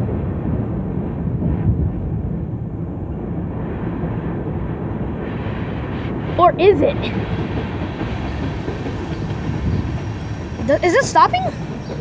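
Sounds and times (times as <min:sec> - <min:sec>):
freight train rolling past: 0:04.6 - 0:12.0.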